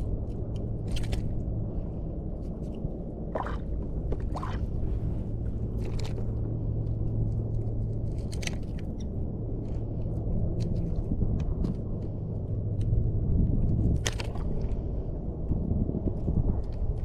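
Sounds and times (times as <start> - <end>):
steady low rumble: 0.0 - 17.0
water sloshing against kayak: 3.3 - 6.4.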